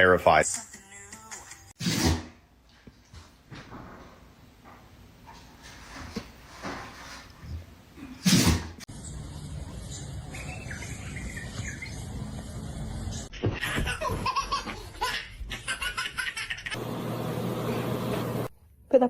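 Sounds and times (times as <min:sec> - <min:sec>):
person laughing: 0:10.3 - 0:12.0.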